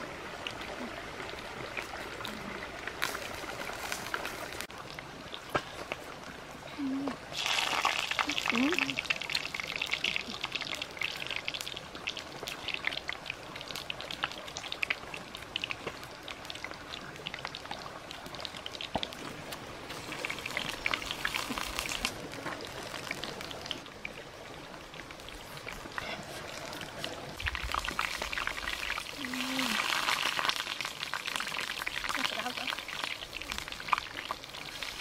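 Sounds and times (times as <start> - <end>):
rain drips and patters: 0.0 - 35.0
steady rain: 0.0 - 35.0.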